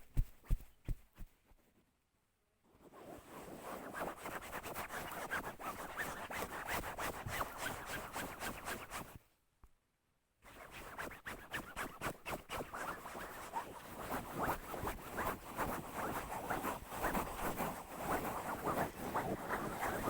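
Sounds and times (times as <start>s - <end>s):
rapid scratching strokes: 10.5s - 20.0s.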